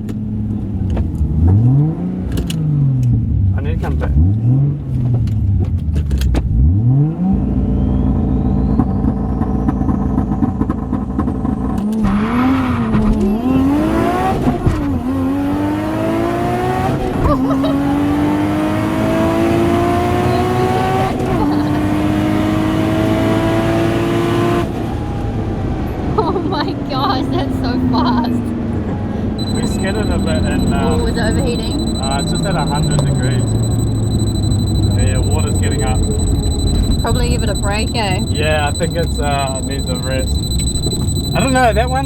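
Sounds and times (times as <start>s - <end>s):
car engine revving and accelerating: 0.4s - 10.4s, 11.9s - 25.6s.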